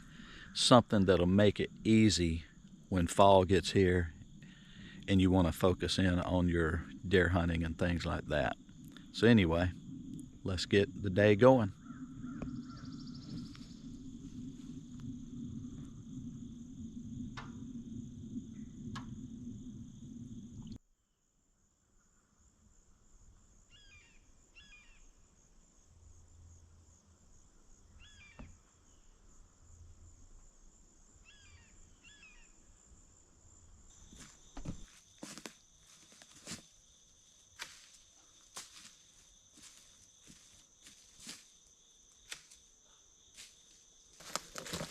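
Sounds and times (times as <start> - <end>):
insects trilling: 0.0 - 20.8, 21.6 - 44.9
low rumble: 1.4 - 20.8
bird chirps: 11.8 - 13.9, 28.0 - 29.0, 31.3 - 32.6.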